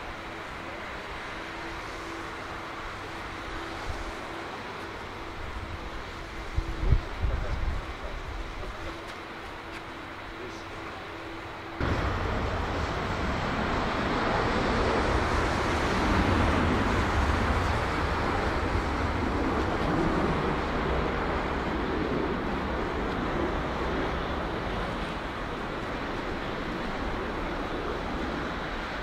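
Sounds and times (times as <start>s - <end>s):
jet engines roaring: 0.0s - 29.0s
low hum: 11.7s - 28.5s.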